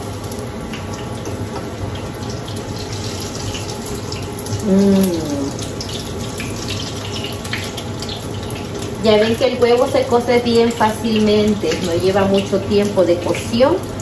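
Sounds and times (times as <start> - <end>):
cauliflower sizzling in oil: 0.0 - 14.0
person humming: 4.6 - 5.6.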